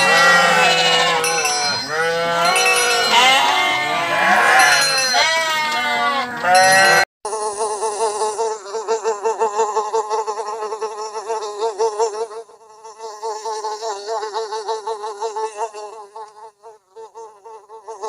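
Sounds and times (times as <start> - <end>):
sheep bleating: 0.0 - 8.3
insect buzzing: 7.3 - 18.0.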